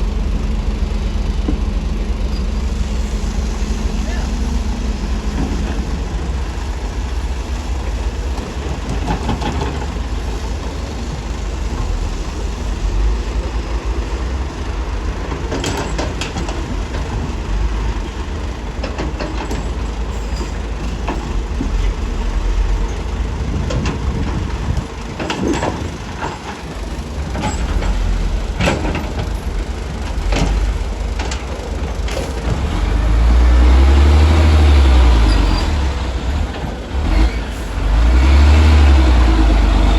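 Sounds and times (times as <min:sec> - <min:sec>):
heavy machinery diesel engines rumbling: 0:00.0 - 0:39.9
sharp knocks and clanks: 0:15.3 - 0:17.3.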